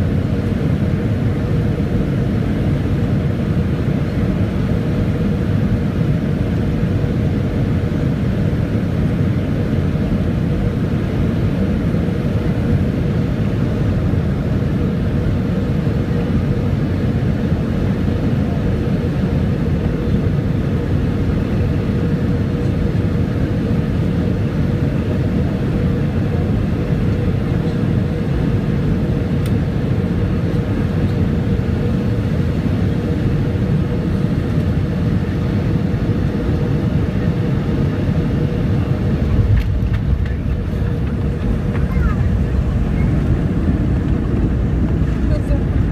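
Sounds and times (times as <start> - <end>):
airliner cabin engine rumble: 0.0 - 45.9
steady hum: 0.0 - 45.9.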